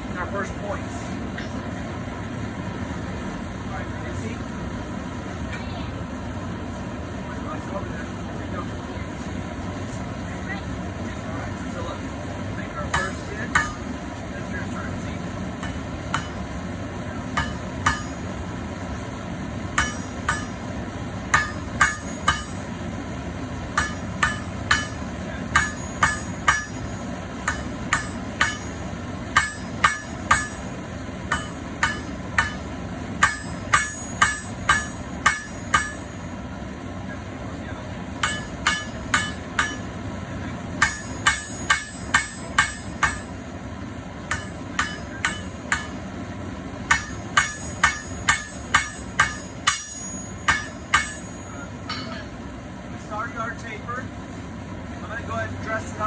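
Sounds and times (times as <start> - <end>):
hammers striking steel on anvil: 12.7 - 22.9, 23.7 - 36.4, 38.2 - 40.0, 40.7 - 43.4, 44.2 - 52.4.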